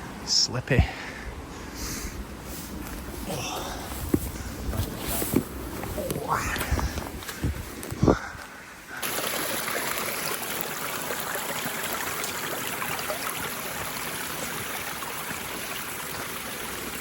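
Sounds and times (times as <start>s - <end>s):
stream water rushing: 9.0s - 17.0s.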